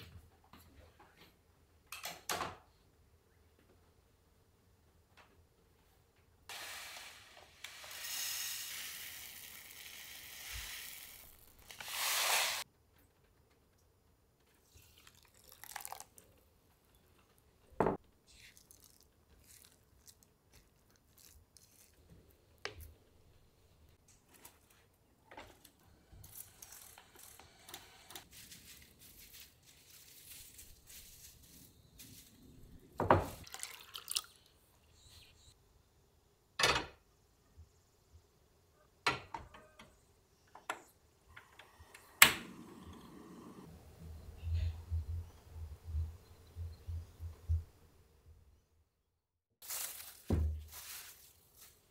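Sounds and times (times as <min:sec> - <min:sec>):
water hissing: 0:06.5 - 0:12.6
crackly rustling in wooden bowl: 0:28.3 - 0:32.6, 0:49.6 - 0:51.9.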